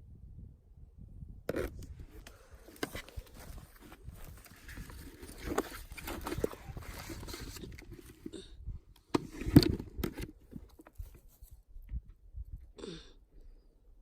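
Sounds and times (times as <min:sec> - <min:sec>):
footsteps crunching in undergrowth: 0:02.8 - 0:07.6.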